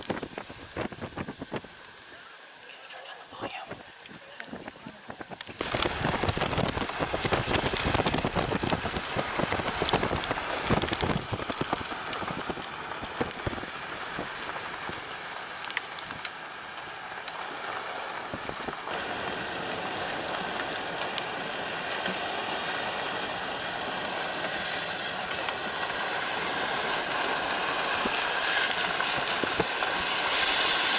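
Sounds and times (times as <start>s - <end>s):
wind gusts on microphone: 0.0s - 2.2s, 3.3s - 15.1s, 18.1s - 21.7s
heavy rain: 0.0s - 30.9s.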